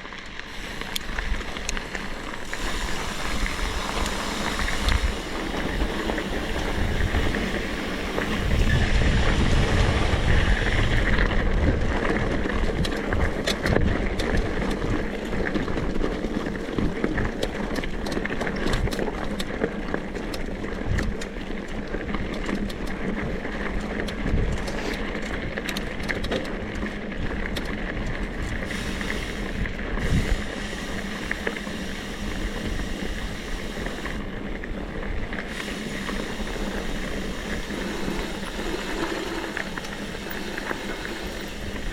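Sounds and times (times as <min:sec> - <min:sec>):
motorcycle engine running: 0:00.0 - 0:16.0, 0:27.4 - 0:41.9
wind noise on microphone: 0:00.5 - 0:41.9.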